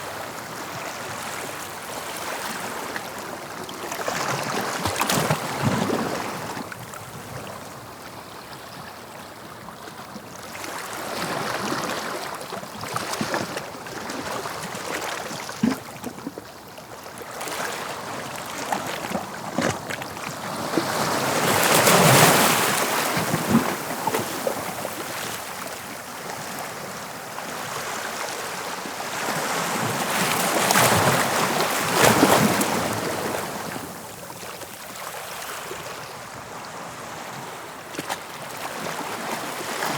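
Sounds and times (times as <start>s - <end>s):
sea waves breaking on shore: 10.5s - 39.9s.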